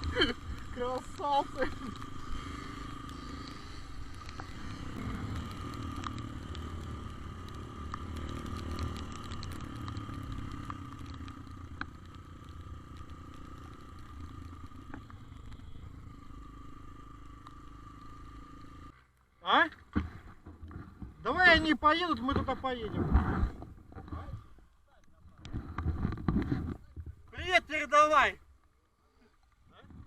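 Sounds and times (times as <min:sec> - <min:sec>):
motor scooter running: 0:00.0 - 0:19.0.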